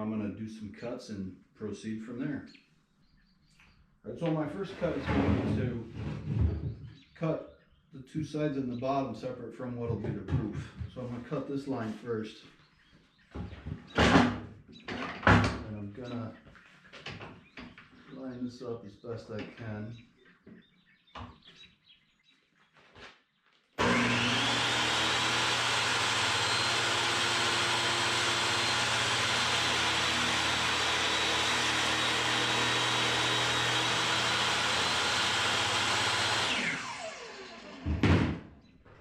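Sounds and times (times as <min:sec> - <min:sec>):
electric saw cutting wood: 0:23.8 - 0:38.1.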